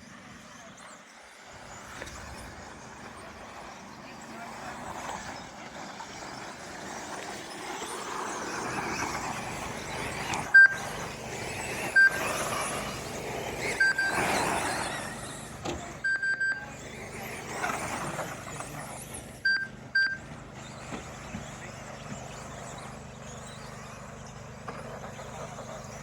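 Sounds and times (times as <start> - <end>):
rc truck motors whining: 0.0 - 26.0
short electronic beeps: 10.5 - 10.8, 12.0 - 12.3, 13.7 - 14.3, 16.0 - 16.7, 19.4 - 20.2.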